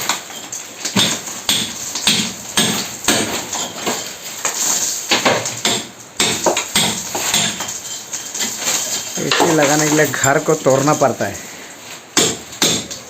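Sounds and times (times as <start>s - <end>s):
hammer striking wall: 0.9s - 4.0s, 5.1s - 7.7s, 12.2s - 13.0s.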